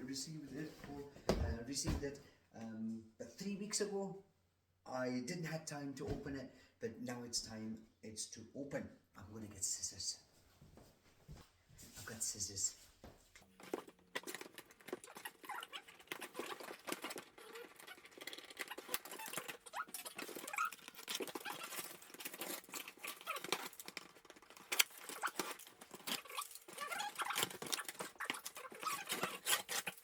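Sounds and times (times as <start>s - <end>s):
scissors cutting packing tape: 14.2s - 30.0s.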